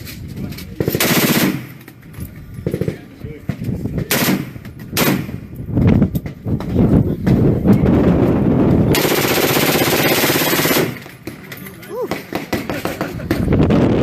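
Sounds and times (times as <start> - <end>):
gunshots: 0.9 - 1.8, 4.0 - 5.4, 8.9 - 11.4, 12.1 - 13.5.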